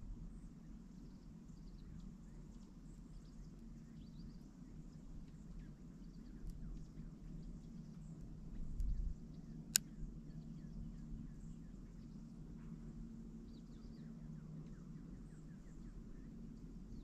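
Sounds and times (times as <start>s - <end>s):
faint songbird chirps: 0.2s - 17.0s
steady low rumble: 4.1s - 17.0s.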